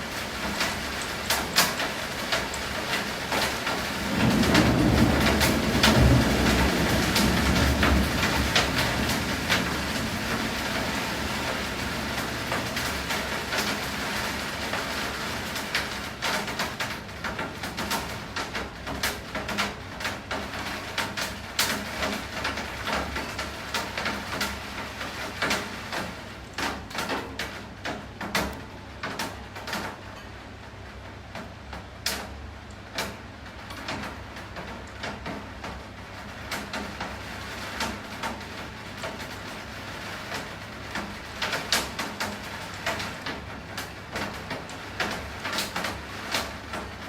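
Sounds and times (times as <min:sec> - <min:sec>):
rain hiss: 0:00.0 - 0:47.0
raindrops tapping hard surface: 0:00.2 - 0:30.3, 0:31.3 - 0:47.0.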